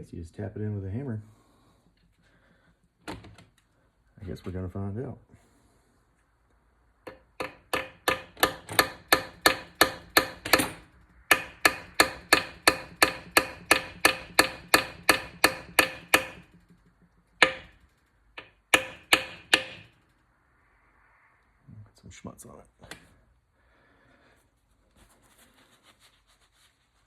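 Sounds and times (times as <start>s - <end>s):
small hammer tapping rivet: 7.1s - 16.8s, 17.4s - 17.8s, 18.4s - 19.9s.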